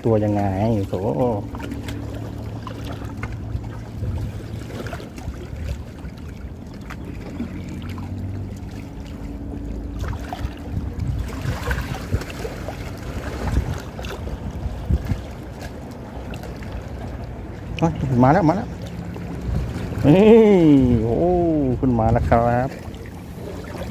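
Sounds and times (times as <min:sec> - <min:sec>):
wind on microphone: 0:00.0 - 0:06.7, 0:10.0 - 0:16.4, 0:19.2 - 0:23.9
low steady hum: 0:00.0 - 0:23.9
water against boat: 0:00.0 - 0:23.9.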